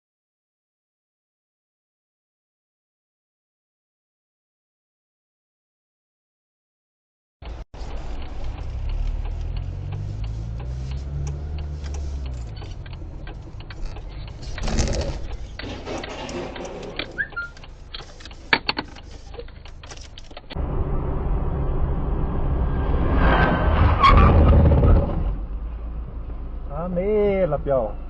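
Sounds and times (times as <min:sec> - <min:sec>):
vehicle engine running: 0:07.4 - 0:23.2
clicks and rattles: 0:11.6 - 0:20.6.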